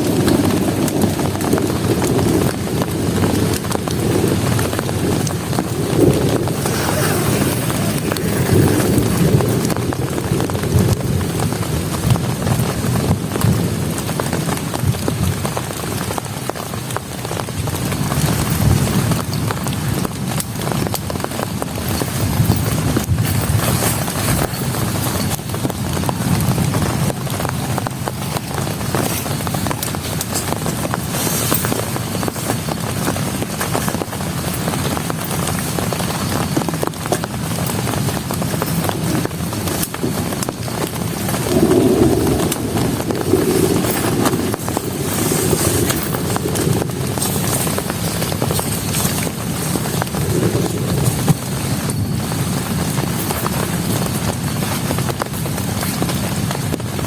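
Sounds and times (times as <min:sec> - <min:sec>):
low rumble: 0:00.0 - 0:15.4, 0:37.3 - 0:55.6
heavy rain falling: 0:00.0 - 0:57.0.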